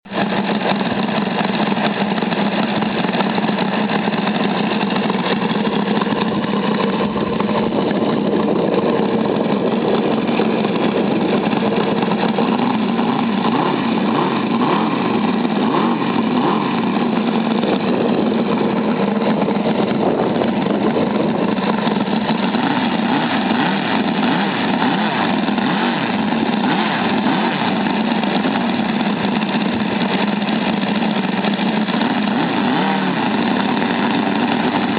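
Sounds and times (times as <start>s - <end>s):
radial engine running: 0.1s - 34.9s.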